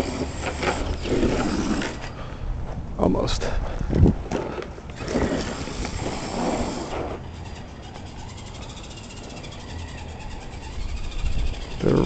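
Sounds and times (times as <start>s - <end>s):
rc truck electric motor: 0.0s - 2.2s, 4.9s - 12.0s
tyres on ground: 0.0s - 2.9s, 3.6s - 12.0s.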